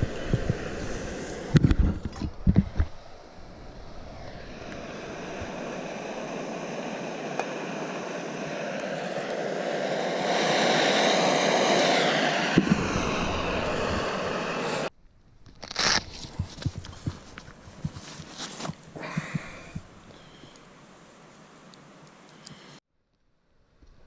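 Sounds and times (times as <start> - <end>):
steady rushing noise: 0.0 - 14.9.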